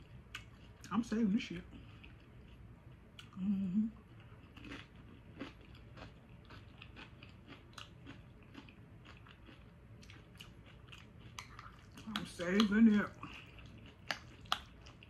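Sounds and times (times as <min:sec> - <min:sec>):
woman humming: 0:03.4 - 0:04.0
person chewing crunchy food: 0:04.1 - 0:15.0.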